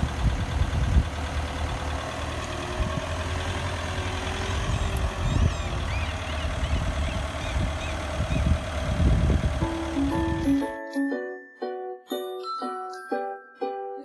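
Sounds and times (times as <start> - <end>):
truck engine rumbling: 0.0 - 10.9.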